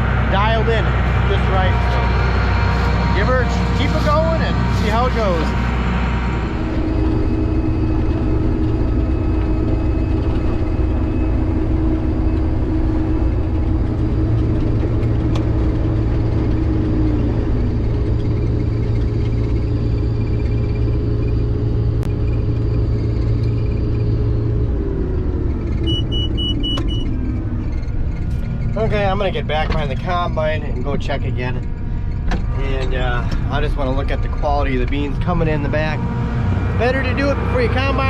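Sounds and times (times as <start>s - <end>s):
combine harvester drone: 0.0s - 38.0s
quick electronic beeps: 25.9s - 27.1s.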